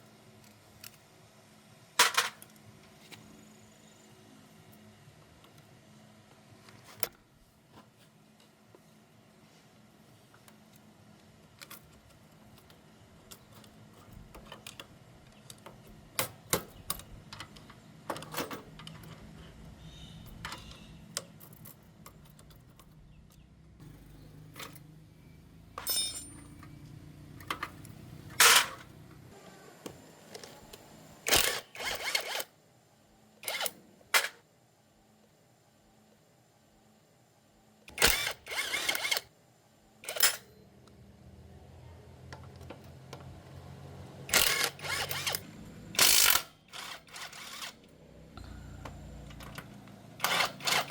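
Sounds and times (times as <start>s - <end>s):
hand tools clinking on metal: 25.8s - 26.8s
low hum: 47.8s - 50.3s.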